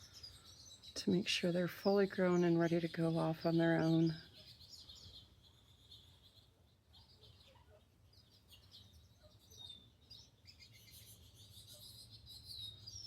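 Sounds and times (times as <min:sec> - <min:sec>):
small songbirds chirping: 0:00.0 - 0:13.0.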